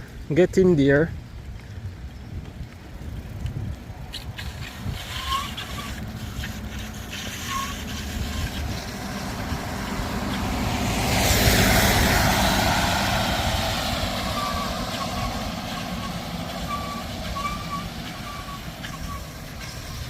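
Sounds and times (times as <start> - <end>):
wind and road rumble: 0.0 - 20.0
vehicle passing on wet road: 2.8 - 20.0
bicycle brake squeaks: 4.1 - 9.0, 14.2 - 20.0.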